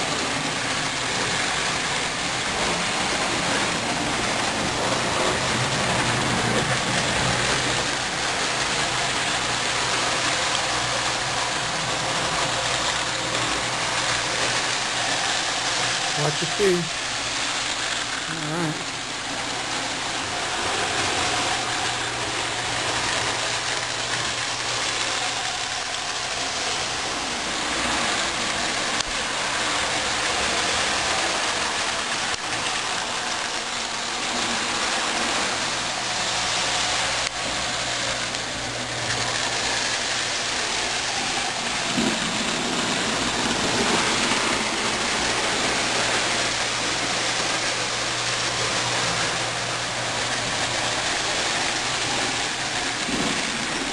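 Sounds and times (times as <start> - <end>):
model train wheels rumbling: 0.0 - 53.9.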